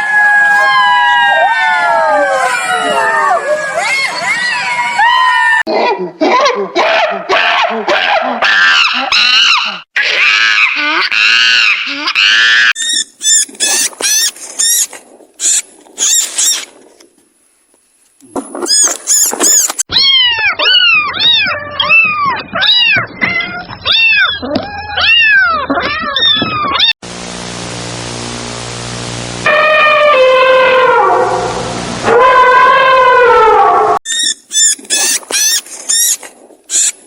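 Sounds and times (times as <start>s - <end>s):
steady hiss with low hum: 13.1s - 19.4s.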